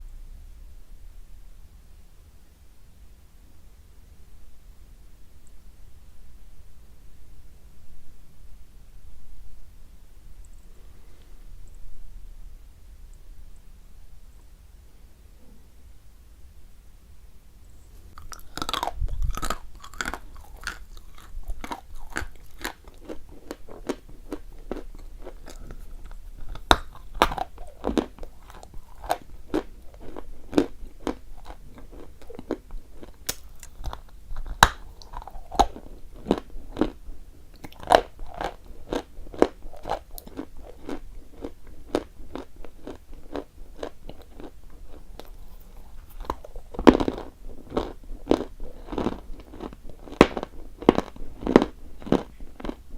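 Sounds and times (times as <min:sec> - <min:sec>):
person crunching chalk: 0:18.2 - 0:37.0, 0:37.7 - 0:52.8.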